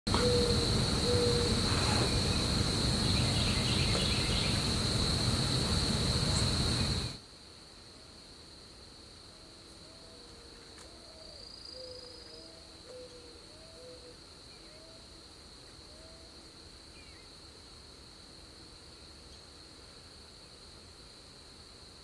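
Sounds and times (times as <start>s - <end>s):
insect buzzing trill: 0.1s - 7.2s
loud rushing noise: 0.1s - 7.2s.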